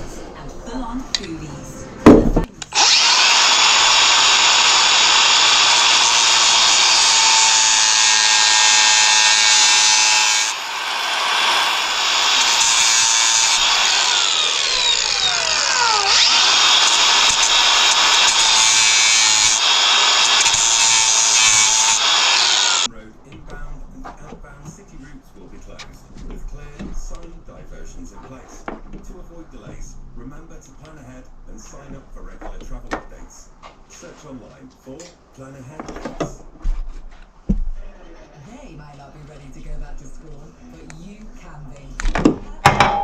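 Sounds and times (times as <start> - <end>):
handheld power tool running: 2.6 - 22.9.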